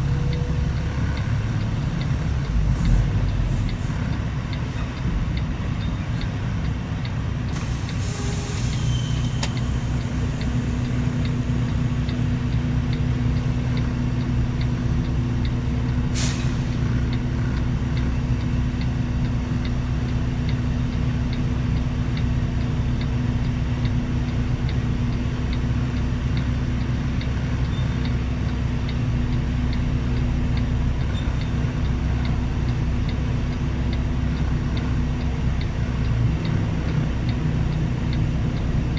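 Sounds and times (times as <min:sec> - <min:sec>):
diesel truck engine running: 0:00.0 - 0:38.9
air hissing: 0:07.6 - 0:11.0
sharp click: 0:09.3 - 0:09.7
faint regular ticking: 0:16.8 - 0:38.9.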